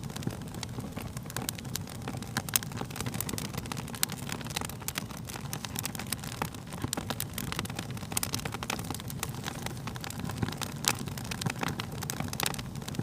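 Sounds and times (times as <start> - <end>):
pops and snaps of fire: 0.0 - 13.0
wood fire crackling: 0.0 - 13.0.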